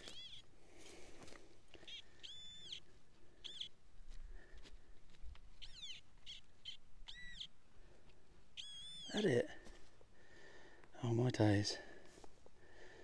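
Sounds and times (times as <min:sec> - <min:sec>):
bird chirps: 0:00.0 - 0:00.5, 0:01.8 - 0:03.8, 0:05.6 - 0:07.6, 0:08.6 - 0:09.3.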